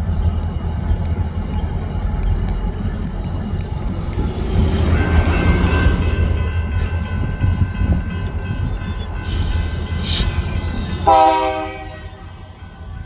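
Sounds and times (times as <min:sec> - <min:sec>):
train rumbling past: 0:00.0 - 0:13.0
train horn blast: 0:03.8 - 0:09.0, 0:11.0 - 0:12.3.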